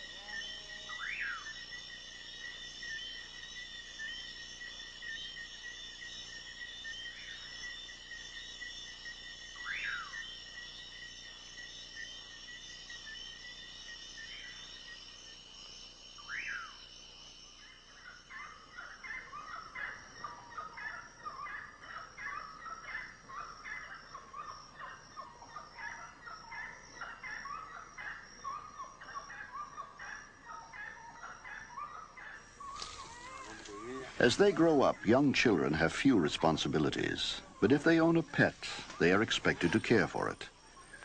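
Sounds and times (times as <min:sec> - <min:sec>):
insects buzzing: 0:00.0 - 0:41.0
chattering animal calls: 0:18.3 - 0:41.0
sweeping animal call: 0:18.3 - 0:41.0.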